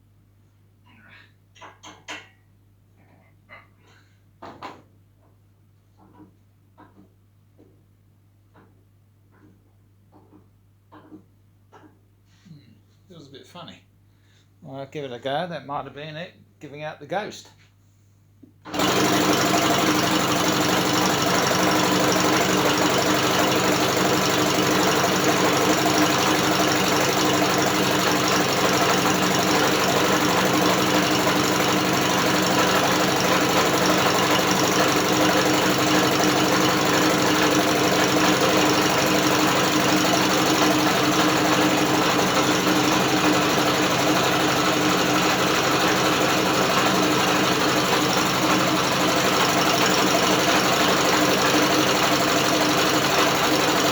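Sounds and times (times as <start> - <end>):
outboard motor turned by drill: 18.7 - 53.9.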